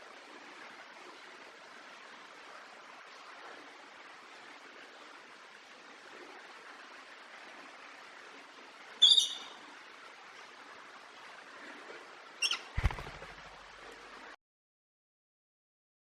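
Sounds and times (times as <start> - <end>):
parrot squawking: 9.0 - 9.6, 12.4 - 13.0.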